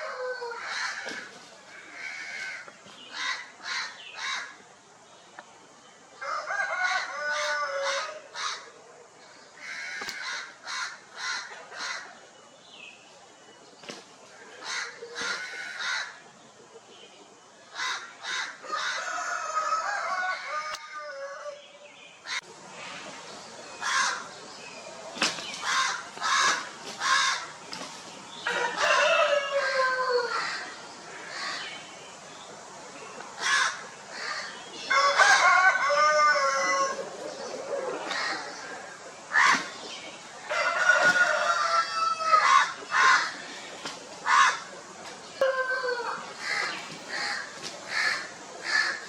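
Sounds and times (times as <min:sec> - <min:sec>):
rooster crowing: 0:00.0 - 0:01.1, 0:06.2 - 0:08.6, 0:18.6 - 0:21.7, 0:28.4 - 0:30.7, 0:34.8 - 0:37.0, 0:40.5 - 0:43.3, 0:45.4 - 0:46.3
harsh bird calls: 0:00.0 - 0:04.7, 0:17.3 - 0:49.0.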